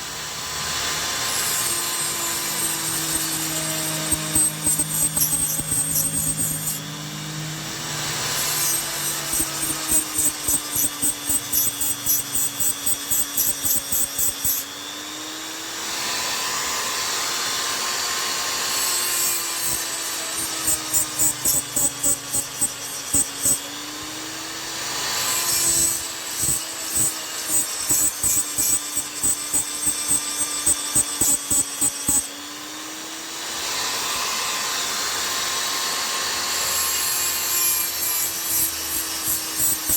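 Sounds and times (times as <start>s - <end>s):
chisel rubbing on sharpening stone: 2.4s - 6.8s, 8.4s - 14.6s, 19.3s - 23.6s, 25.4s - 32.3s.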